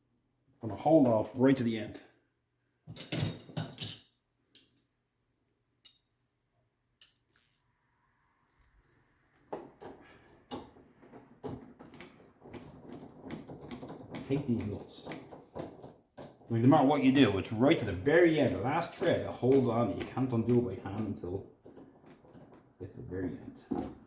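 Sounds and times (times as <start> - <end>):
spanner clinking on nut: 7.0 - 7.6.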